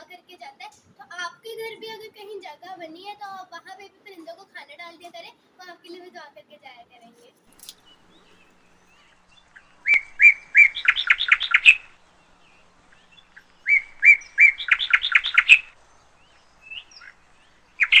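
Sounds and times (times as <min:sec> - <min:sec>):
bird singing: 0:07.4 - 0:18.0.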